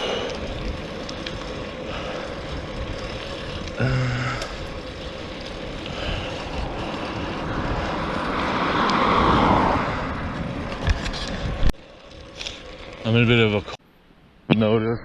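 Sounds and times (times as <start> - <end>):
vehicle passing: 0.0 - 13.6
outdoor vehicle noise: 0.0 - 14.9.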